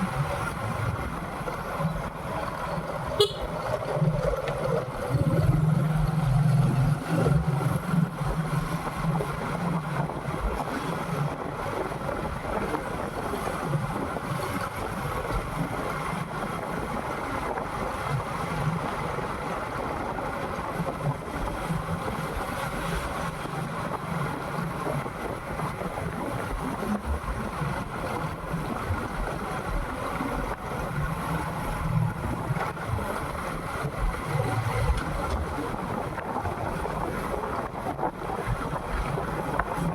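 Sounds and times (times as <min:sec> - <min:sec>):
wind rushing over microphone: 0:00.0 - 0:39.9
motorcycle engine running: 0:02.6 - 0:08.2.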